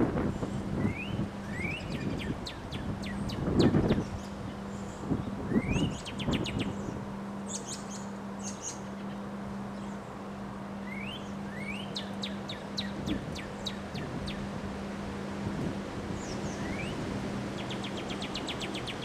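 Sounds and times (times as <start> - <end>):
wind rumbling on microphone: 0.0 - 7.2, 12.8 - 19.0
steady low hum: 0.0 - 19.0
songbird singing: 0.4 - 15.3, 16.0 - 19.0.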